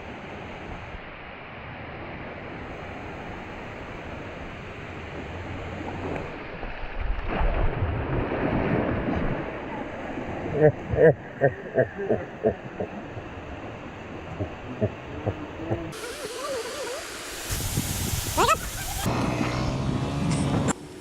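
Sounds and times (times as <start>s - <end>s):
waterfall rushing: 9.5s - 19.2s.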